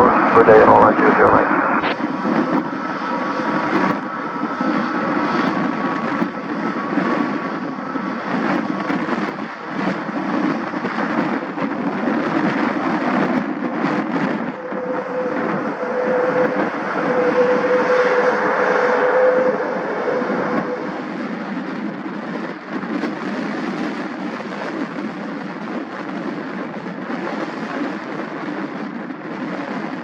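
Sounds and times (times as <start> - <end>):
steady hum: 0.0 - 10.4, 12.2 - 22.2
jet engine roar: 0.0 - 30.0.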